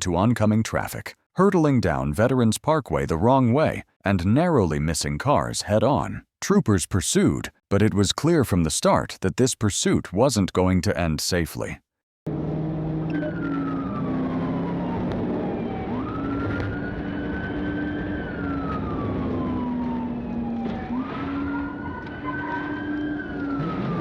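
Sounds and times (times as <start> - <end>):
engine and road noise: 12.3 - 24.0
police siren wailing: 12.3 - 24.0.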